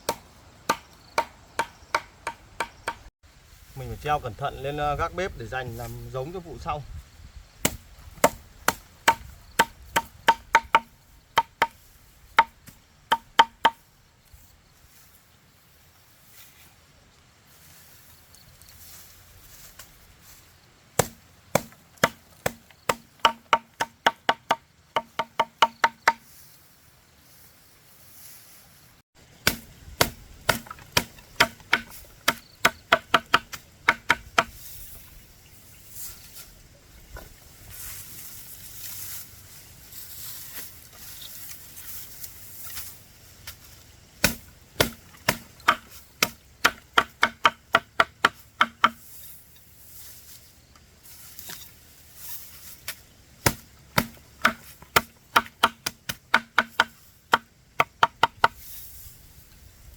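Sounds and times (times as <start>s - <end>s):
knife chopping on wooden board: 21.0s - 26.2s, 29.4s - 34.5s.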